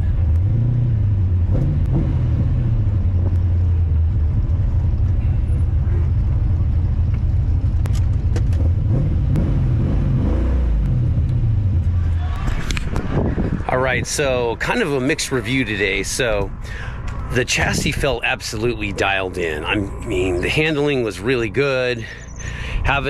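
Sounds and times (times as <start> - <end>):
misfiring car engine revving: 0.0 - 11.9.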